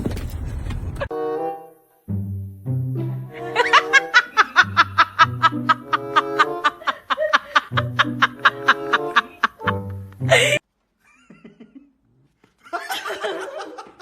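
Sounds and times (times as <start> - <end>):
background music: 1.1 - 10.6
snickering laughter: 3.3 - 14.0.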